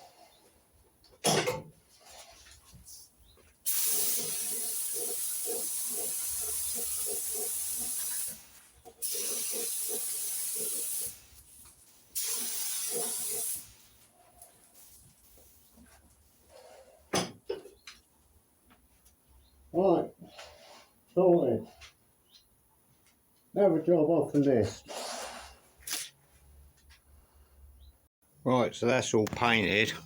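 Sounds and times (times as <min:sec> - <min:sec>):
spray gun hissing: 0:03.6 - 0:11.5, 0:12.1 - 0:14.0.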